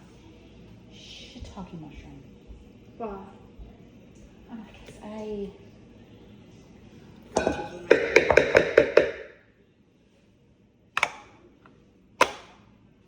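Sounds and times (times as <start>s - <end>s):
whisk knocking against bowl: 7.4s - 9.3s.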